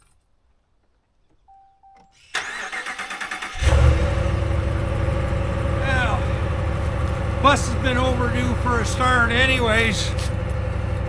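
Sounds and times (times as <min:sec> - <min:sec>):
short beep: 0:01.5 - 0:02.3
bus engine starting and idling: 0:02.1 - 0:11.0.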